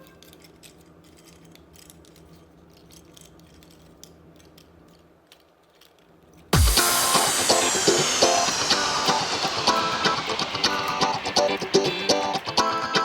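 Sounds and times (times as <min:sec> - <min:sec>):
plastic toy parts clicking: 0:00.0 - 0:06.5
loud music: 0:06.6 - 0:13.0.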